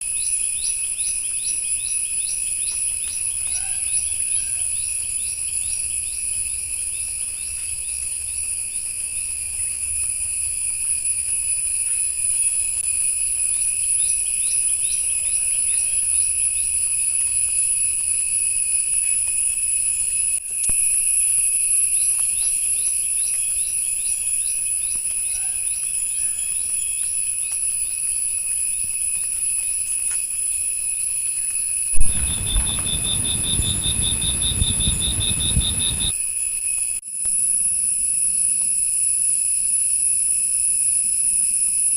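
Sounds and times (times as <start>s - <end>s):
insect chirping: 0.0s - 36.6s
insects shrill drone: 0.1s - 20.4s, 29.8s - 36.8s.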